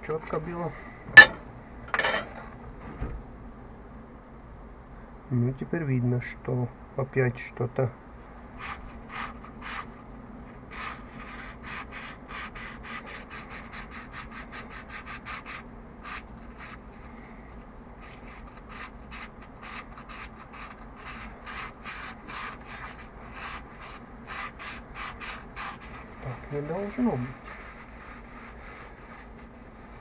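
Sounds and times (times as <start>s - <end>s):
rapid rubbing strokes: 18.0s - 30.0s.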